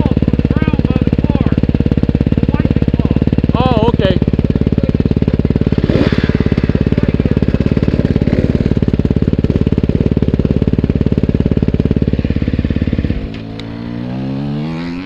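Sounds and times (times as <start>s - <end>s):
motorcycle engine running: 0.0s - 15.0s
engine rising in pitch: 3.5s - 15.0s.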